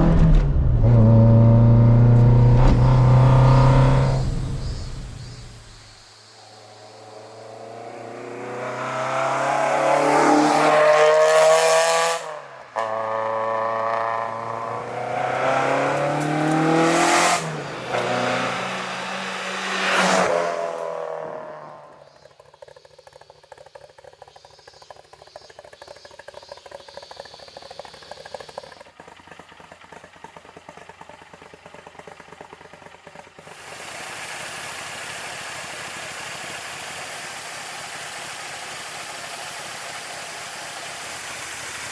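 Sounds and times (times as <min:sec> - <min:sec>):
car engine revving: 0:00.0 - 0:28.7
steady hiss: 0:03.2 - 0:08.1
engine idling with clatter: 0:21.9 - 0:41.9.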